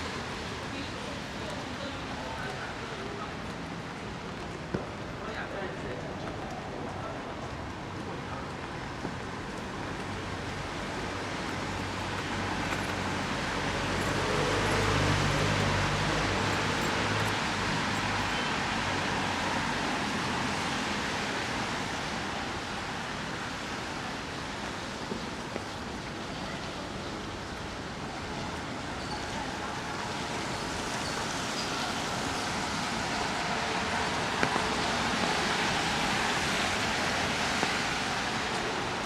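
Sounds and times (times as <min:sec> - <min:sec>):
wet street traffic: 0:00.0 - 0:39.0
rain hiss: 0:08.6 - 0:39.0
vehicle engine hum: 0:11.4 - 0:18.8.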